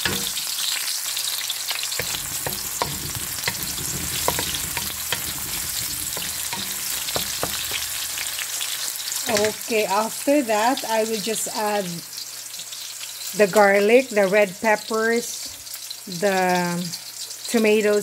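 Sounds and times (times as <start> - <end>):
wooden spatula tapping and scraping: 0.0 - 0.5, 2.0 - 8.6, 9.3 - 9.6
vegetables sizzling in oil: 0.0 - 18.0.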